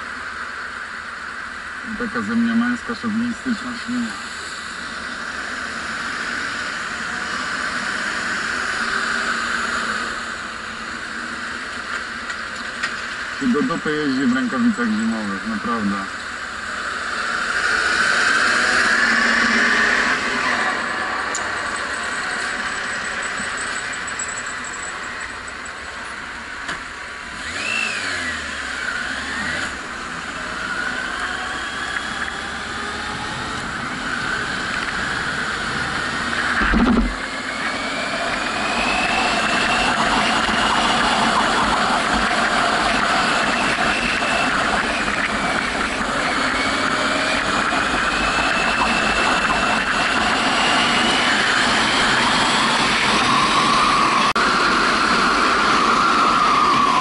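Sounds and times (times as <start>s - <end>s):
wind and road noise: 0.0s - 57.0s
motorcycle engine accelerating: 27.3s - 57.0s
thump: 36.6s - 37.2s.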